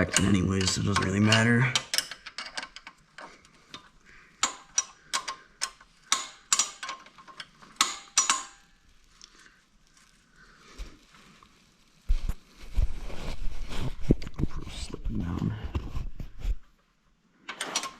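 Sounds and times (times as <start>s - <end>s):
hand tools clicking on metal: 0.0s - 8.7s
faint handling noise: 0.0s - 17.9s.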